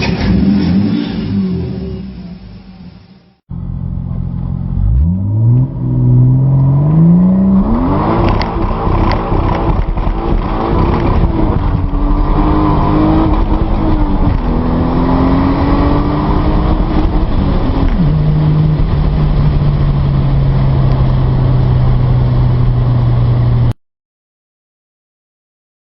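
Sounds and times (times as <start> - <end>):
car engine revving under acceleration: 3.5 - 23.7.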